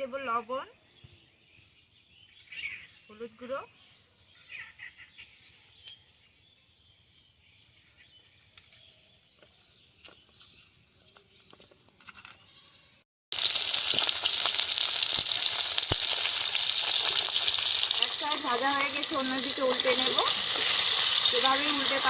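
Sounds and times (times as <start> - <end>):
fish frying in hot oil: 13.3 - 22.0.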